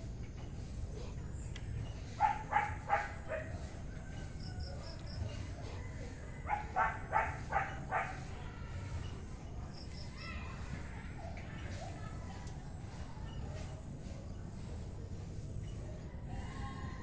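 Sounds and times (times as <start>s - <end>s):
dog barking: 2.2s - 3.8s, 6.4s - 8.4s.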